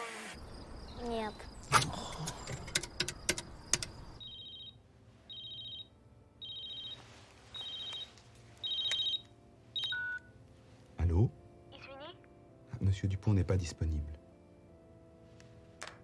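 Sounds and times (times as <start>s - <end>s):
sharp clicks: 1.7s - 4.0s
telephone ringing: 4.2s - 10.3s.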